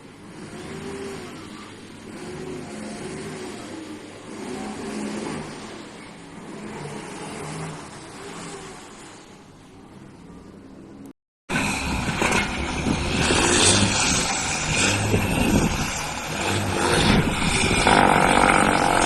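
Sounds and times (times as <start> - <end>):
quiet vehicle sound: 0.0 - 19.0
diesel truck engine running: 11.5 - 19.0.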